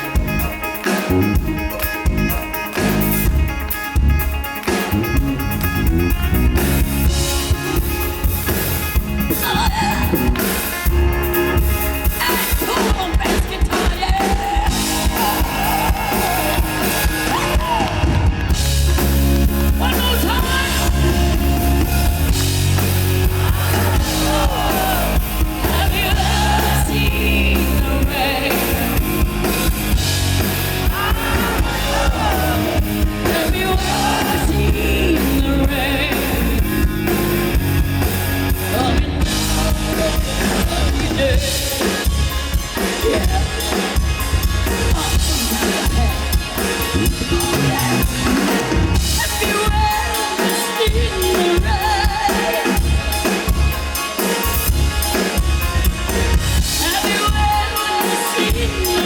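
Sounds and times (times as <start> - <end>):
rock band playing: 0.0 - 59.0
person singing: 23.2 - 29.8, 30.8 - 36.8, 47.2 - 52.9, 56.7 - 59.0.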